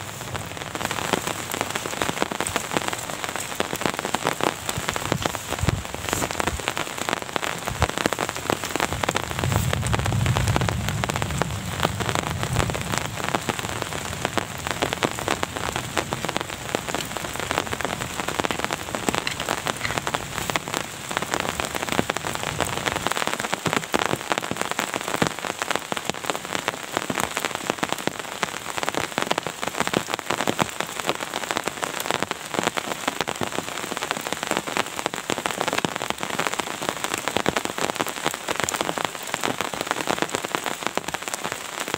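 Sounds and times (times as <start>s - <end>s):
heavy rain falling: 0.0s - 41.9s
low rumble: 8.9s - 14.8s.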